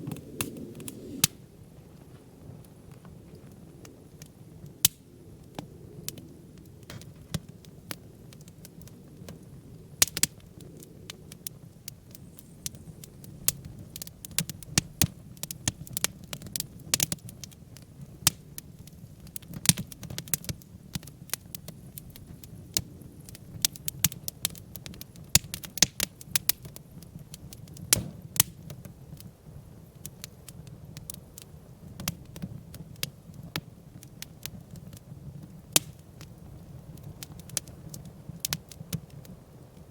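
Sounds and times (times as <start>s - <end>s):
campfire crackling and popping: 0.0s - 39.9s
low rumble of flame: 0.0s - 39.9s.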